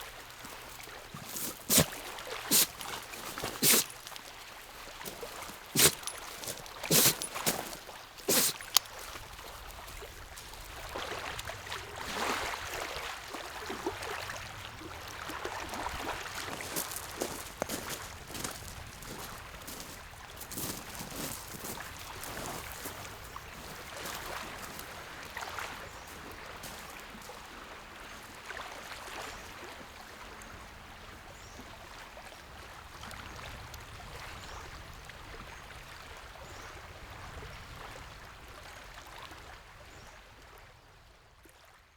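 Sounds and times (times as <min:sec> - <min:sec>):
lake waves lapping on shore: 0:00.0 - 0:30.3.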